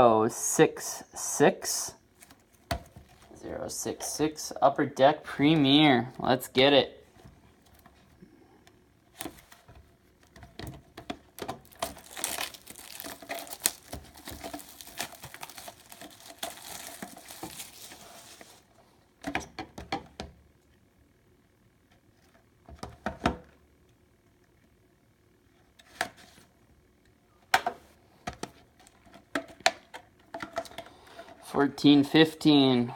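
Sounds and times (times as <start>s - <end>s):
handling knocks and rustles: 9.1s - 20.3s
plastic wrapping crinkling and tearing: 11.3s - 18.7s.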